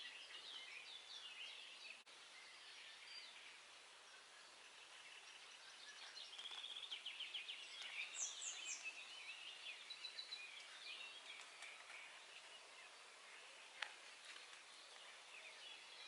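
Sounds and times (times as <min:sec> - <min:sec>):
soft outdoor hiss: 0:00.0 - 0:16.0
songbirds singing and chirping: 0:00.0 - 0:16.0.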